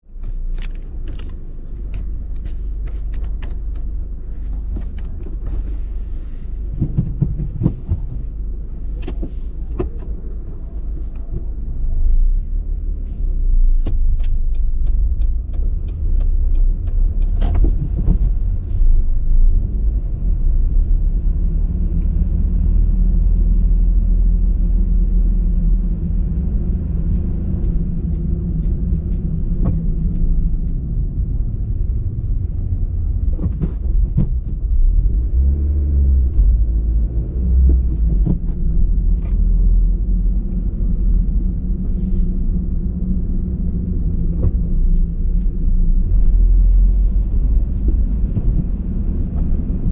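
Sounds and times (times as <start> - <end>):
car engine rumble: 0.0 - 49.9
road noise: 0.0 - 49.9
sharp clicks and ticks: 13.8 - 18.4, 26.4 - 34.6.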